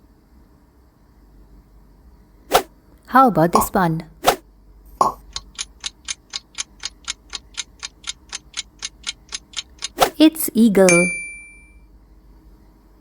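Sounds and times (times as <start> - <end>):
clock ticking: 5.0 - 10.2.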